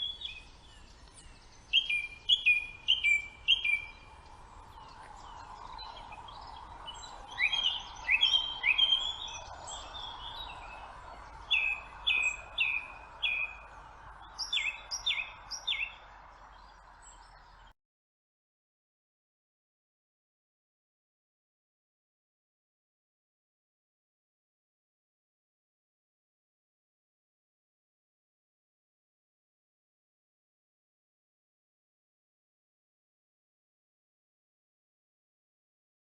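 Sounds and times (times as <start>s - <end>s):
songbirds singing: 0.0s - 17.7s.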